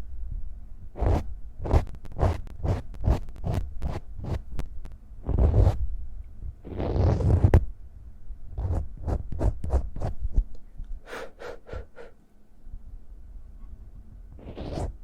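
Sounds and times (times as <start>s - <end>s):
palms rubbing together: 14.4s - 15.0s.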